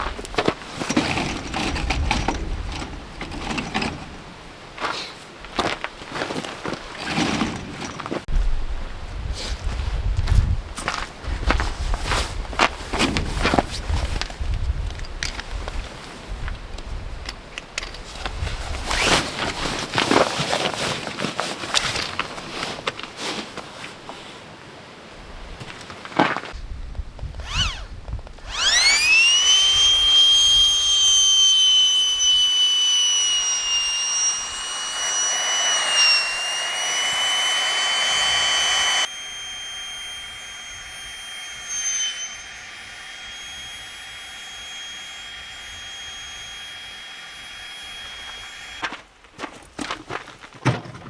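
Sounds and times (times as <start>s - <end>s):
loud hiss: 27.4s - 48.8s
high rising whistle: 27.4s - 49.0s.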